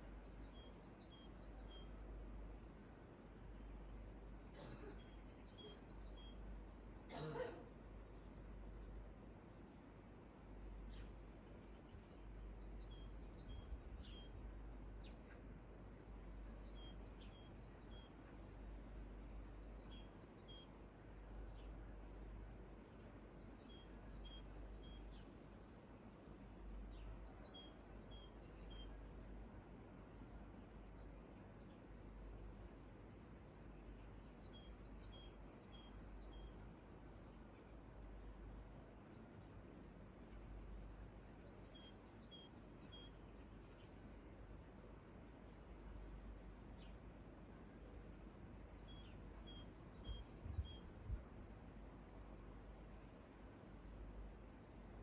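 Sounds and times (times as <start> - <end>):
small bird chirping: 4.6 - 6.4, 11.8 - 14.4, 23.4 - 25.3, 26.9 - 29.1, 34.1 - 36.6, 40.9 - 44.0, 48.5 - 51.0
high insect trill: 10.0 - 25.4, 26.1 - 55.0.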